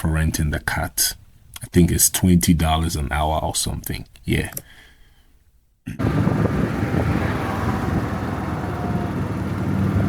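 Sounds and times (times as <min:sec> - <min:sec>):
golf cart running: 0:06.0 - 0:10.0
wind on microphone: 0:06.0 - 0:10.0.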